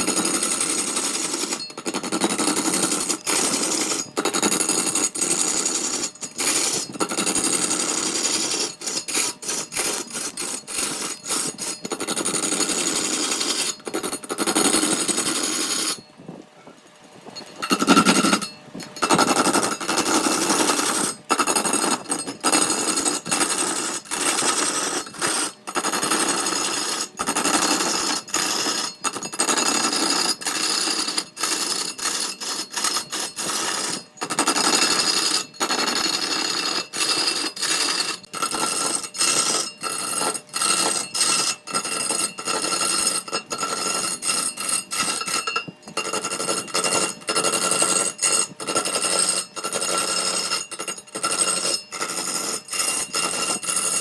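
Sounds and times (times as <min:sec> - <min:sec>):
power tool grinding wood: 0:00.0 - 0:16.0, 0:17.6 - 0:54.0.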